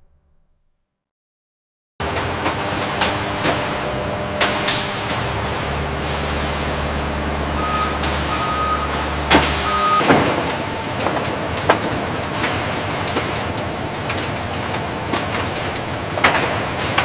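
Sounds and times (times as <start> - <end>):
vehicle engine rumbling: 2.0 - 17.0
reversing beeper: 7.5 - 10.8.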